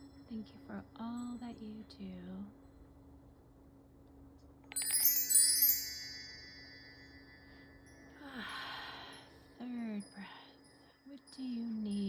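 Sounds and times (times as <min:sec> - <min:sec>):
metal chimes ringing: 0:04.7 - 0:12.0
person breathing with a sigh: 0:07.4 - 0:09.6.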